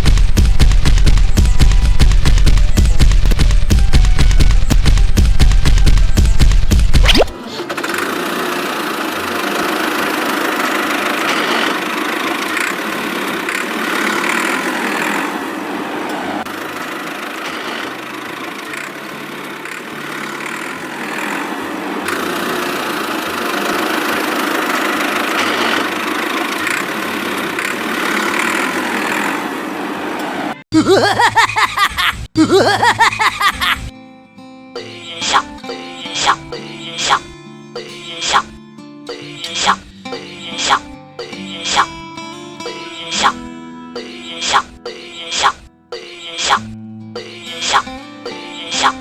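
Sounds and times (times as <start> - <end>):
engine running: 0.0 - 30.6.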